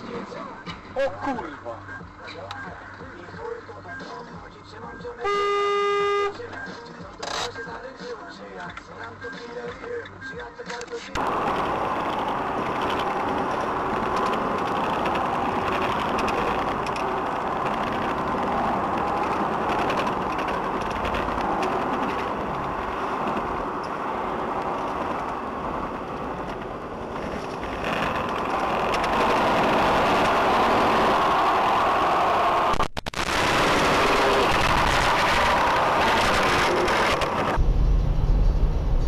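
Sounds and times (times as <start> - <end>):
road noise: 0.0 - 39.0
vehicle engine running: 11.2 - 31.8, 33.3 - 39.0.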